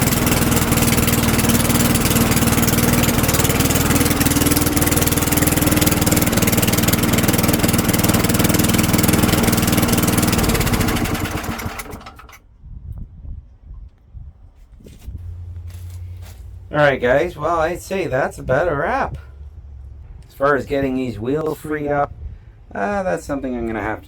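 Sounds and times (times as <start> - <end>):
lawn mower engine running: 0.0 - 12.4.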